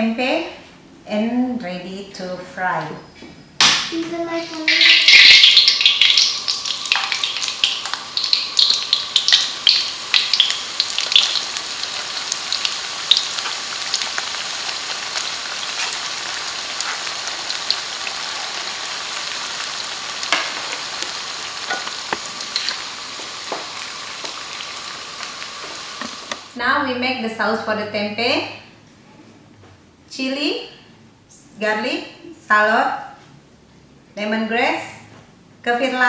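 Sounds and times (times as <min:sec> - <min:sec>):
food sizzling in hot oil: 0:04.5 - 0:26.6.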